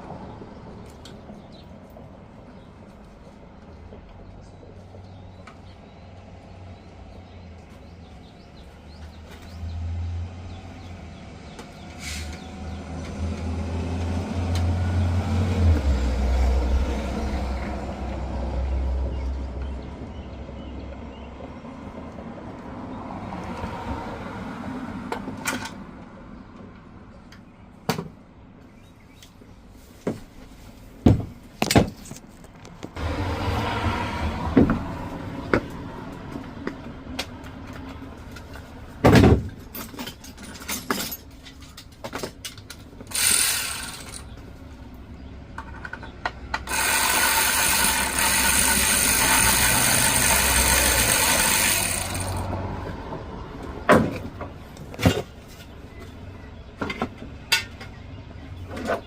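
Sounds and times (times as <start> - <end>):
tools and parts clicking and knocking: 25.1 - 25.8, 31.1 - 33.0, 36.3 - 44.5, 45.5 - 52.6, 56.8 - 58.0.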